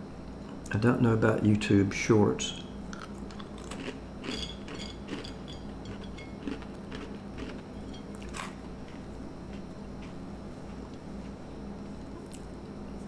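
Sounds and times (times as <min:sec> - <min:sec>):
crunching and chewing crackers: 0:02.9 - 0:10.2, 0:12.0 - 0:12.6.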